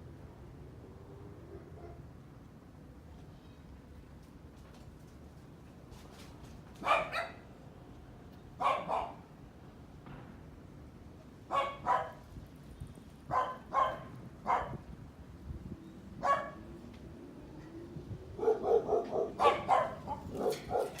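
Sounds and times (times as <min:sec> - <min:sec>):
dog barking: 0:06.8 - 0:07.4, 0:08.6 - 0:09.2, 0:11.5 - 0:12.2, 0:13.3 - 0:14.8, 0:16.2 - 0:16.6, 0:18.4 - 0:21.0.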